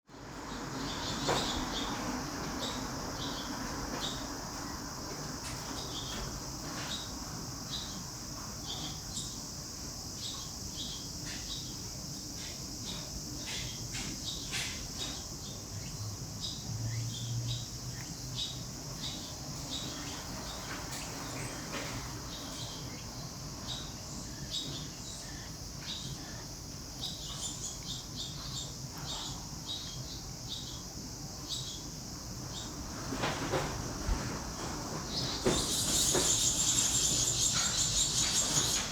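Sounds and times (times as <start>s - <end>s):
small birds chirping: 0.1s - 38.9s
steady high hiss: 0.1s - 38.9s.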